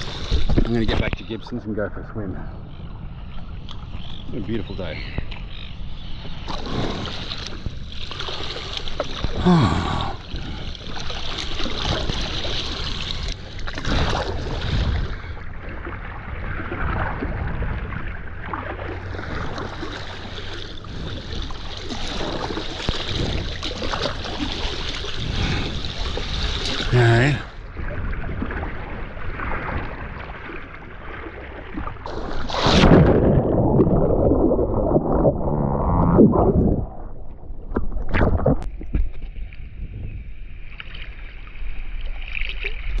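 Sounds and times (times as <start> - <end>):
kayak paddle splashing: 0.0 - 0.6, 6.1 - 39.5
water washing against hull: 0.0 - 1.3, 6.2 - 43.0
falling tone: 32.6 - 37.7.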